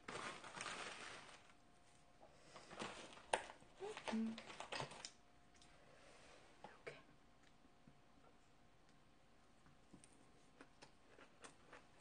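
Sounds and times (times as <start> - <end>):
wet chewing and mouth smacking: 10.0 - 12.0.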